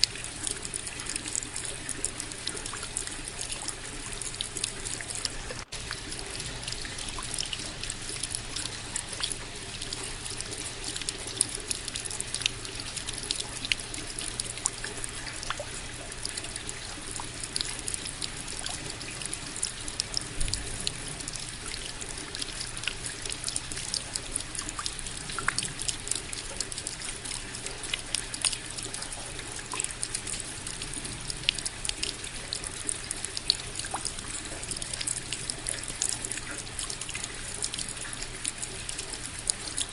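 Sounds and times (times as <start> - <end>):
steady rain hiss: 0.0 - 3.4
close raindrops striking: 0.0 - 39.9.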